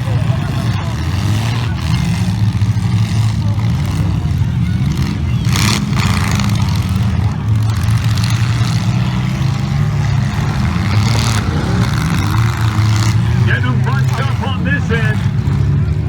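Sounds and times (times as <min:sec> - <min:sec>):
car engines rumbling loudly: 0:00.0 - 0:16.0
loud noisy bursts: 0:10.4 - 0:15.4.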